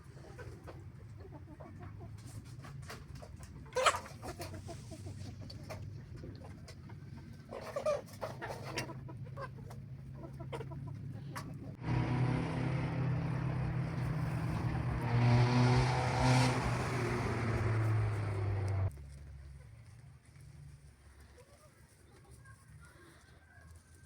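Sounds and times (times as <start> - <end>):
chickens clucking: 0.0 - 15.3
loud steady machine hum: 11.8 - 18.9.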